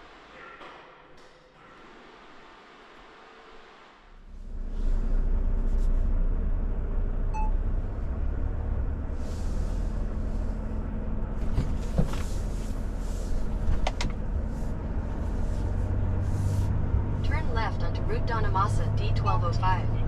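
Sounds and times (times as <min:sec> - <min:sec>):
truck diesel engine rumble: 0:04.3 - 0:20.0
short electronic beep: 0:07.3 - 0:07.6.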